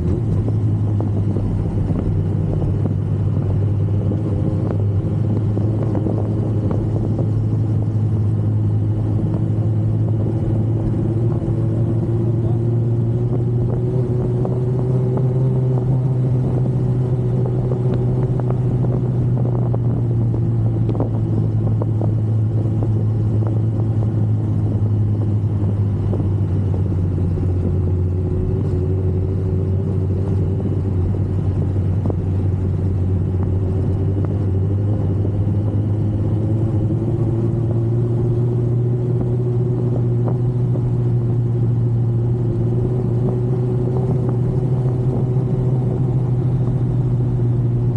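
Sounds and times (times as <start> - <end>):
motorcycle engine running: 0.0 - 47.9
wind noise: 0.0 - 47.9.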